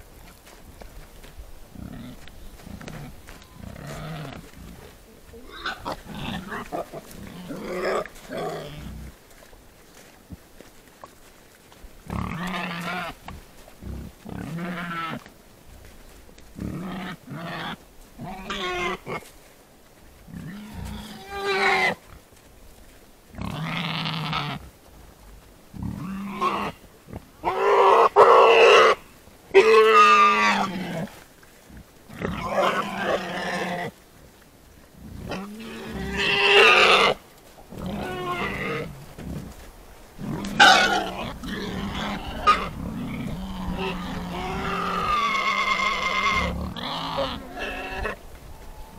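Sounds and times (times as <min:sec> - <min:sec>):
wild boar grunts and squeals: 0:01.7 - 0:09.2, 0:12.0 - 0:15.3, 0:16.5 - 0:19.3, 0:20.2 - 0:22.2, 0:23.3 - 0:24.7, 0:25.7 - 0:34.0, 0:35.0 - 0:48.9.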